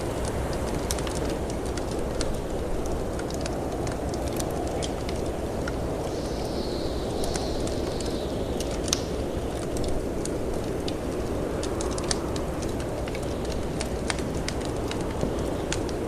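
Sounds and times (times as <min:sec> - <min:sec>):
storm wind rushing: 0:00.0 - 0:16.0
wood fire crackling: 0:00.0 - 0:16.0
wind whistle: 0:05.8 - 0:09.4.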